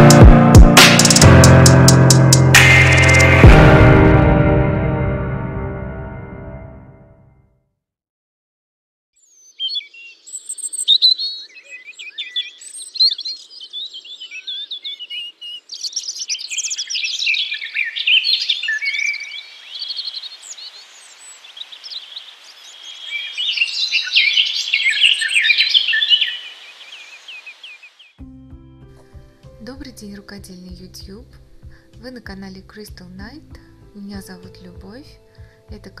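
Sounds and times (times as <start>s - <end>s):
songbirds chirping and singing: 9.2s - 28.2s.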